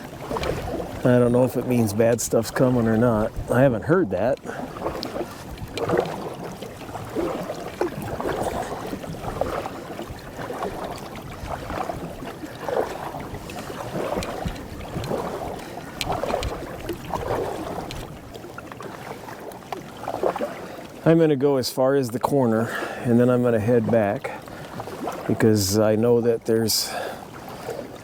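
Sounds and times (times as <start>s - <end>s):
canoe paddle strokes: 0.0s - 28.0s
water swishing along hull: 0.0s - 28.0s.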